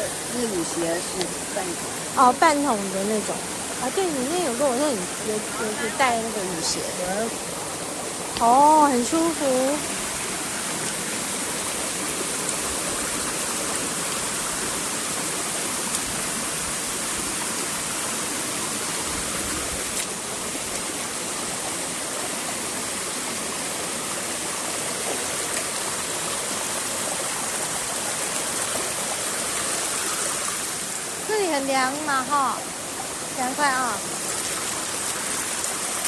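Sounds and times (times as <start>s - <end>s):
stream running over rocks: 0.0s - 36.0s
waterfall rushing: 0.0s - 36.0s.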